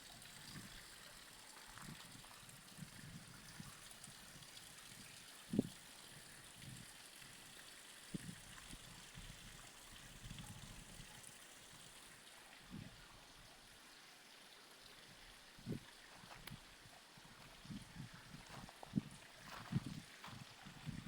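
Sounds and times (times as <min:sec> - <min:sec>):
running water trickling: 0:00.0 - 0:21.0
soft low thumps: 0:17.4 - 0:21.0.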